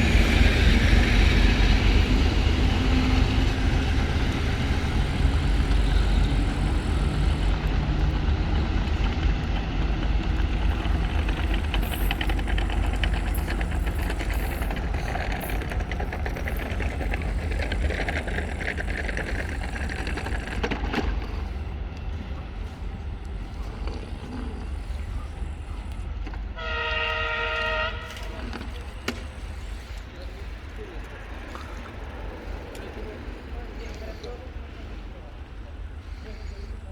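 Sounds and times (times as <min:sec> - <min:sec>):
diesel locomotive engine rumbling: 0:00.0 - 0:36.9
fast rattling clicks: 0:08.8 - 0:21.5.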